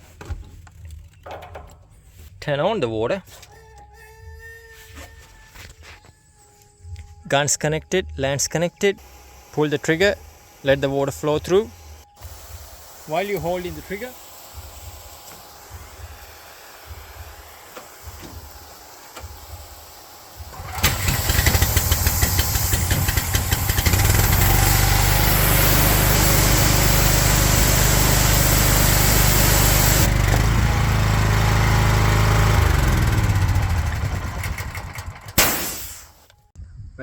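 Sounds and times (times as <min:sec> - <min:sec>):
water jet hissing: 0:09.0 - 0:30.2, 0:35.4 - 0:36.2
pressure washer engine running: 0:09.0 - 0:36.0.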